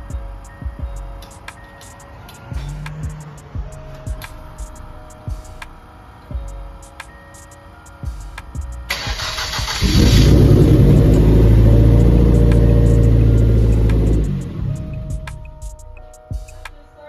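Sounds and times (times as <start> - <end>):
car engine running loudly: 9.2 - 15.4.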